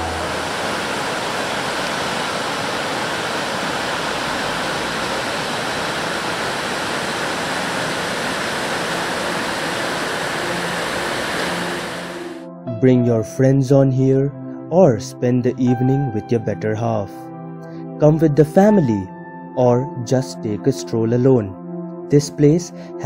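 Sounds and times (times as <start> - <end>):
river water rushing: 0.0 - 12.4.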